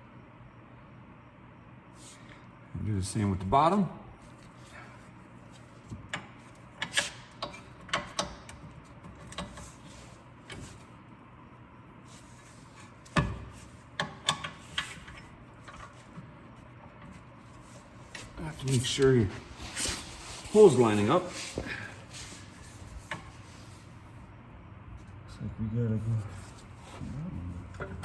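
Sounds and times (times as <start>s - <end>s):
tools clicking and knocking: 6.1s - 9.6s, 14.0s - 15.9s.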